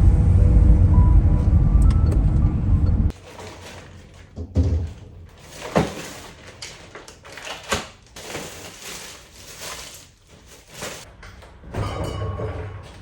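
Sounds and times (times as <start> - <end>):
household knocks and clatters: 3.1 - 13.0.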